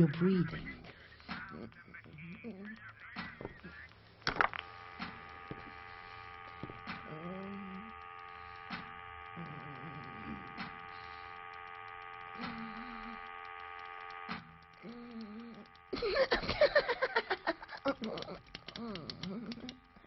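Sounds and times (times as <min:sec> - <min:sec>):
machine hum of held tones: 0:00.0 - 0:20.0
scattered clicks: 0:00.0 - 0:20.0.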